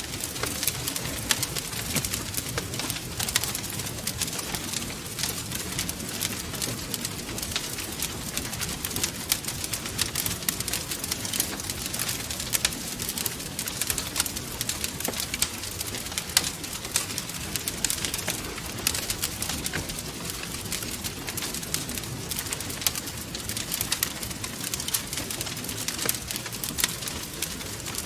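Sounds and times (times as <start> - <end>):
flames low roar: 0.0 - 28.0
wood fire crackling: 0.0 - 28.0.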